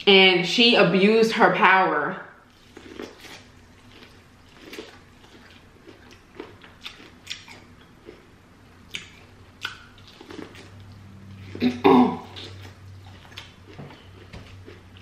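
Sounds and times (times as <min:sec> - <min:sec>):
chewing corn on the cob: 0:02.5 - 0:08.3, 0:08.9 - 0:15.0.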